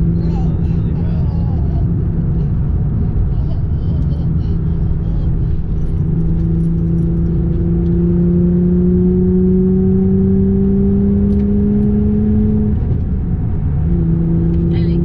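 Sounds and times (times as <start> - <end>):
car engine accelerating: 0.0 - 15.0
low road rumble: 0.0 - 15.0.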